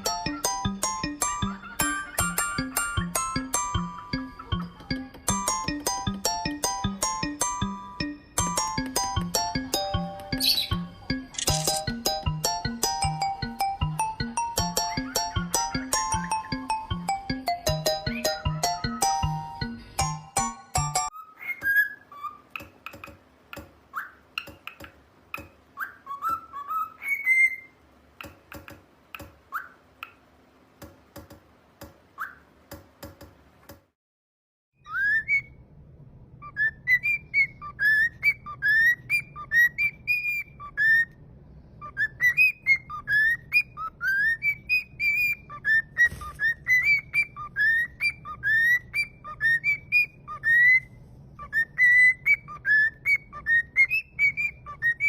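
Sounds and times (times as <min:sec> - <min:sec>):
low background hum: 0:00.0 - 0:33.9, 0:34.8 - 0:55.0
cockatiel whistling: 0:25.8 - 0:27.8, 0:34.8 - 0:35.6, 0:36.4 - 0:41.1, 0:41.8 - 0:55.0.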